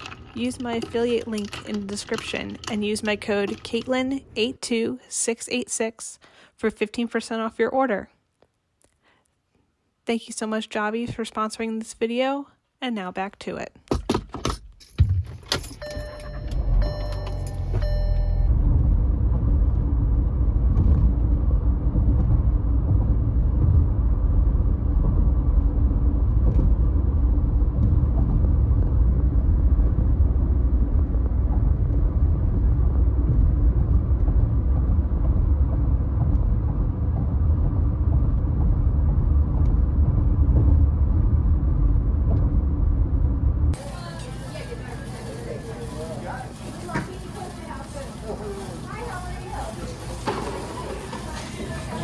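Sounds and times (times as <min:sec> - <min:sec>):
car engine and road rumble: 0:14.8 - 0:43.8.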